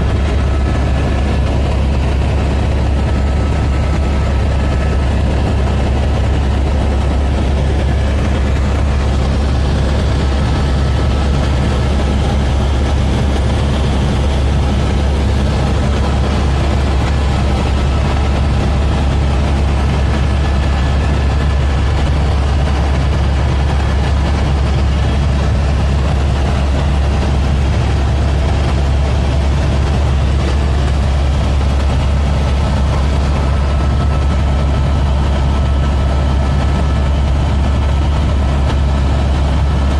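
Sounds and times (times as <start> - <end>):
helicopter drone: 0.0 - 39.9.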